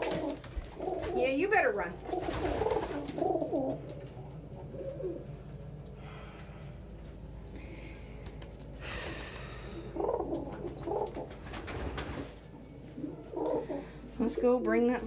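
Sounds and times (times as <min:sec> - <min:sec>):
wings fluttering: 0:00.0 - 0:05.4, 0:08.0 - 0:12.5
pigeons cooing: 0:00.0 - 0:14.6.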